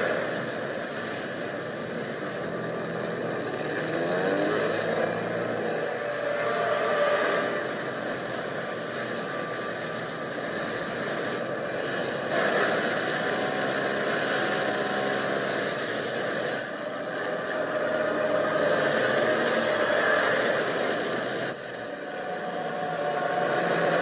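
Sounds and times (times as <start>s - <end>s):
propeller airplane engine droning: 0.0s - 24.0s.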